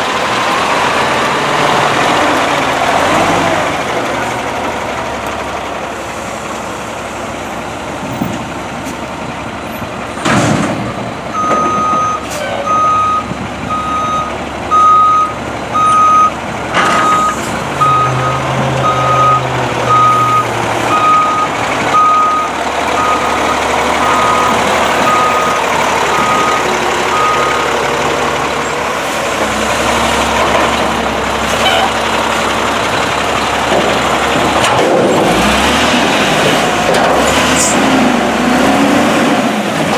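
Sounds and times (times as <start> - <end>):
garbage truck engine running: 0.0 - 39.9
reverse alarm beeping: 11.4 - 16.4, 17.1 - 27.7.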